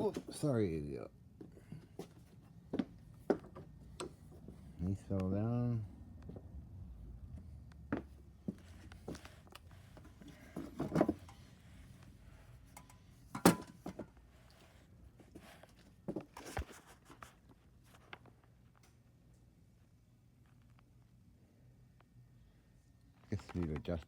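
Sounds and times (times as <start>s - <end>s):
objects knocking and thudding: 10.0s - 11.4s.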